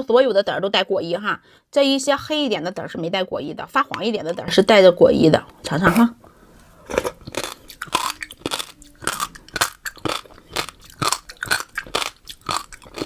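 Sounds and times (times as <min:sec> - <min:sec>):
chewing fruit seeds: 0:06.9 - 0:13.0.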